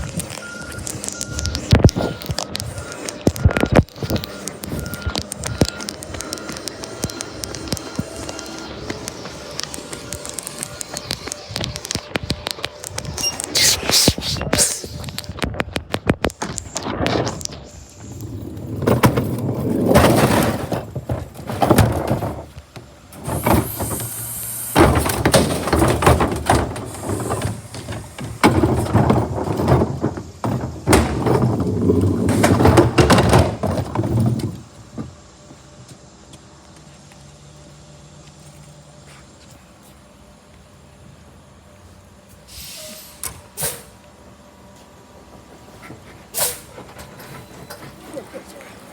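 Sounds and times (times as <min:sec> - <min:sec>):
garbage truck running: 0:00.0 - 0:39.0, 0:39.6 - 0:48.9
garbage truck clattering and crashing: 0:18.1 - 0:35.1.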